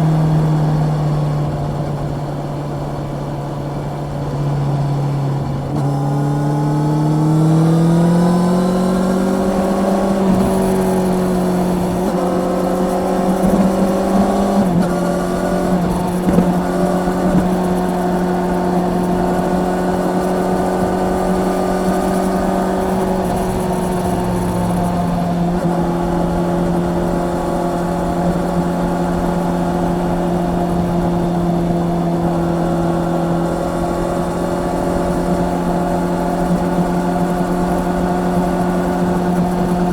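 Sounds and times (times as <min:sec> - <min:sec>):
motorcycle engine accelerating: 0:00.0 - 0:39.9
wind rush: 0:07.5 - 0:36.3.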